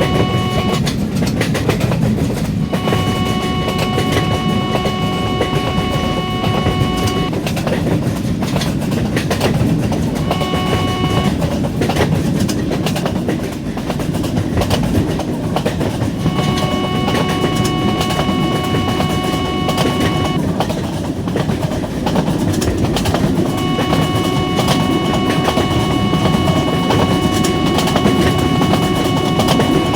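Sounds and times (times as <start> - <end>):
train horn blasts: 0.0 - 0.8, 2.6 - 7.3, 10.2 - 11.3, 16.1 - 20.4, 23.5 - 29.9.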